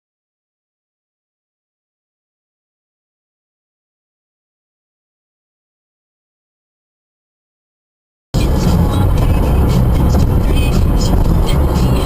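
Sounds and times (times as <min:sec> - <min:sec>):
music playing: 0:08.4 - 0:12.0
vehicle engine running: 0:08.4 - 0:12.0.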